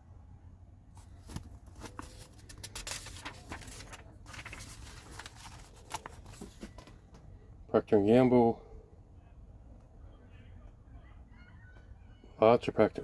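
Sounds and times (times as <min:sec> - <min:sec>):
paper pages rustling: 0:01.0 - 0:07.3.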